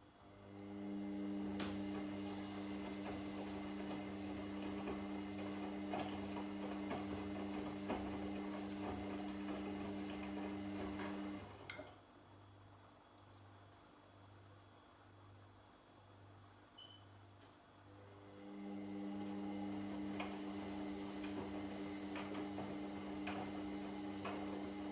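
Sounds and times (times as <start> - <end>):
washing machine motor humming: 0.3 - 11.9, 18.0 - 24.9
light clicks from tumbling load: 19.1 - 24.9.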